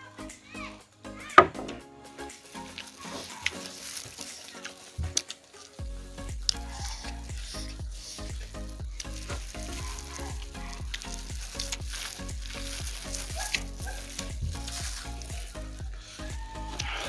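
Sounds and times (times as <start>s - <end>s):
background music: 0.0s - 17.0s
wet chewing: 2.6s - 5.8s, 6.4s - 17.0s
crackly crunching of food: 8.6s - 15.6s.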